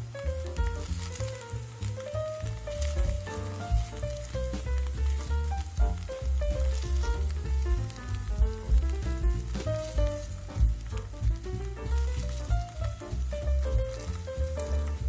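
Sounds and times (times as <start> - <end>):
background music with bass: 0.0 - 15.0
tofu sizzling in a pan: 0.0 - 15.0.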